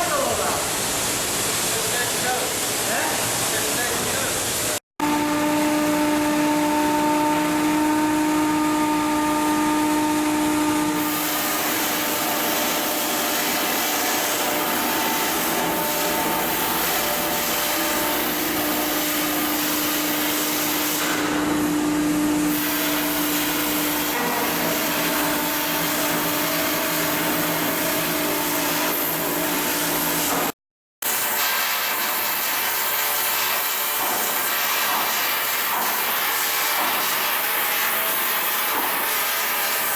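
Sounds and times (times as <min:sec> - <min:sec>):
loud mechanical drone: 0:05.0 - 0:19.0.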